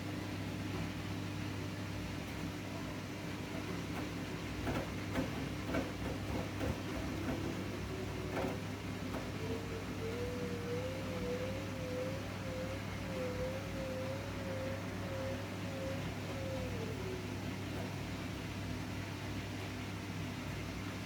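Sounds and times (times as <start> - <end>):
washing machine motor hum: 0.0 - 21.0
washing machine drum sounds: 2.4 - 10.0.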